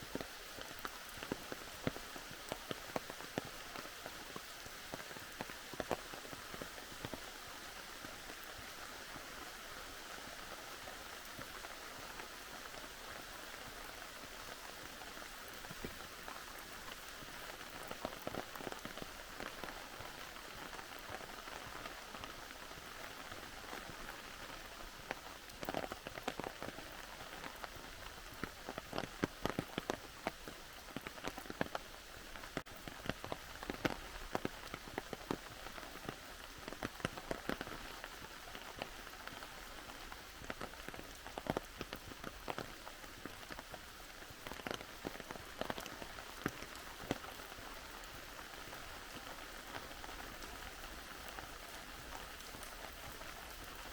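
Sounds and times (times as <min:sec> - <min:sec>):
steady rain hiss: 0:00.0 - 0:53.9
close raindrop hits: 0:14.8 - 0:53.9.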